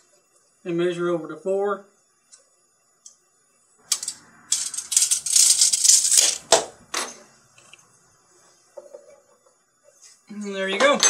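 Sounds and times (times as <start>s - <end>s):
tape measure retracting rattle: 3.9s - 6.6s.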